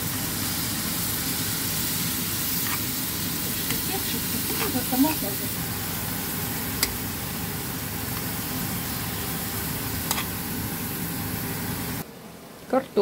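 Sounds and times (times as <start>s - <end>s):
vegetables sizzling in a frying pan: 0.0s - 13.0s.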